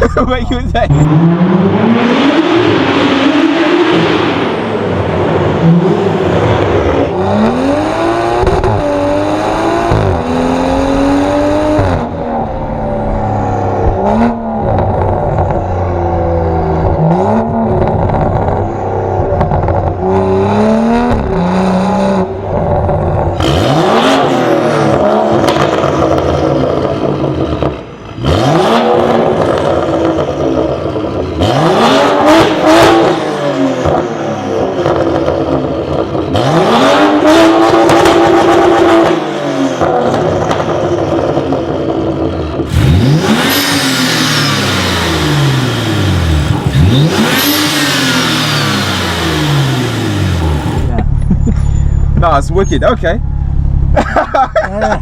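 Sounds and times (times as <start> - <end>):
car engine accelerating: 0.0 - 55.0
exhaust cracks: 8.2 - 31.5, 37.1 - 55.0.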